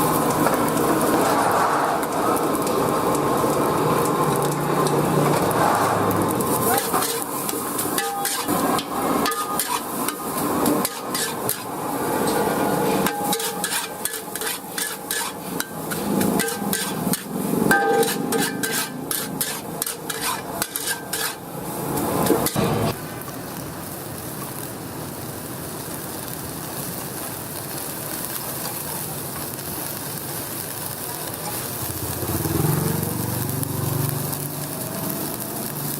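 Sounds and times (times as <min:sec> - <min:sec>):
food sizzling in oil: 0:00.0 - 0:35.9
metal spatula scraping wok: 0:00.1 - 0:23.0.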